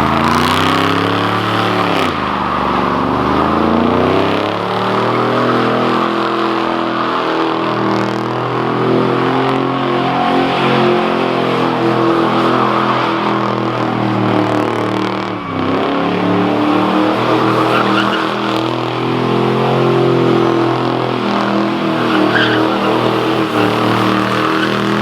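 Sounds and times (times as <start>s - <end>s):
car engine revving high: 0.0s - 25.0s
spinning tyres hissing: 16.6s - 25.0s.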